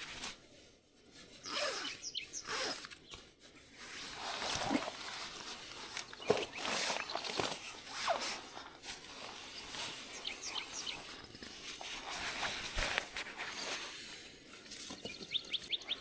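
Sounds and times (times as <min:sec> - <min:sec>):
rustling and handling noises: 0:00.0 - 0:16.0
bird chirps: 0:01.4 - 0:03.2, 0:06.1 - 0:07.6, 0:09.6 - 0:11.2, 0:14.8 - 0:16.0.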